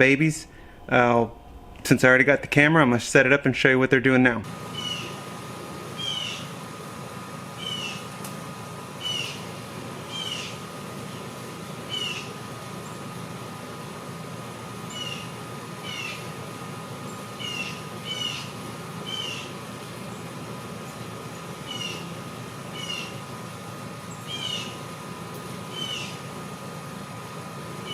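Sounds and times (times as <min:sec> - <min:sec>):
low background hum: 0:00.0 - 0:27.9
bird mewing call: 0:04.6 - 0:05.2, 0:05.9 - 0:06.6, 0:07.6 - 0:08.1, 0:09.0 - 0:09.5, 0:10.1 - 0:10.6, 0:11.8 - 0:12.4, 0:14.9 - 0:16.3, 0:17.1 - 0:20.3, 0:21.6 - 0:23.3, 0:24.1 - 0:24.8, 0:25.7 - 0:26.3.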